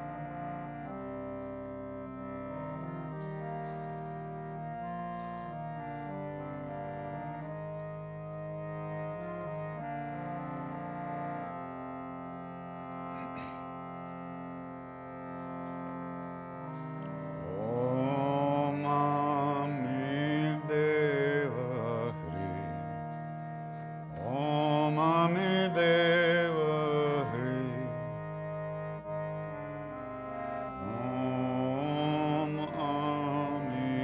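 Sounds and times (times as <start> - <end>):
harmonium chord: 0.0 - 34.0
person singing wordless phrases: 17.6 - 23.0, 24.2 - 28.2, 30.8 - 34.0.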